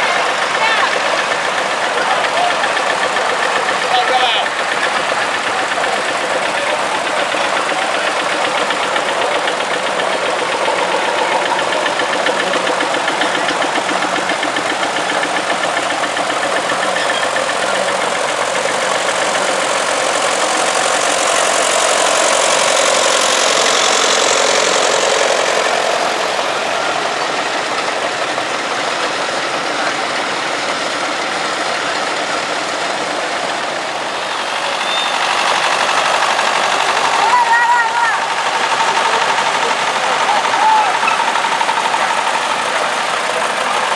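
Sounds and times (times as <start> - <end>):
tractor engines driving past: 0.0 - 43.9.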